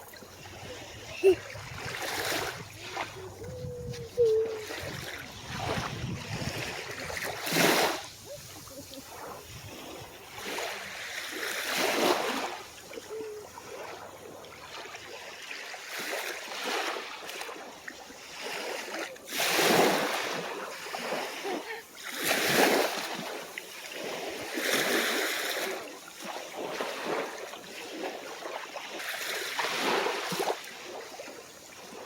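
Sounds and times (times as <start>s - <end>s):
ocean waves washing onto shore: 0.0s - 32.0s.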